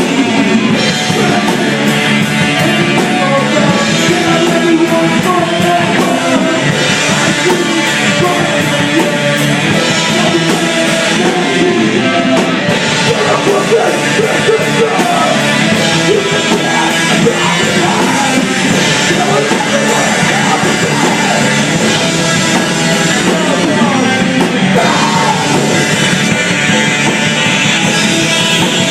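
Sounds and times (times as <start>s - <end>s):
rock band playing: 0.0s - 28.9s.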